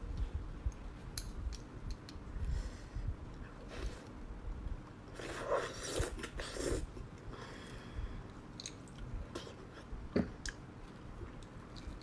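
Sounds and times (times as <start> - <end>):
wet sucking slurps: 5.1 - 7.0
soft mouth noises: 5.1 - 7.4.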